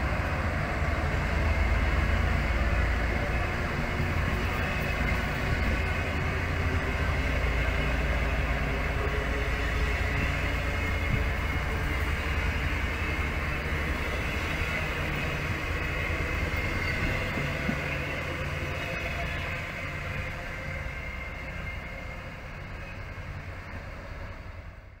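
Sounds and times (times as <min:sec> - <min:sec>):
electric train passing: 0:00.0 - 0:25.0.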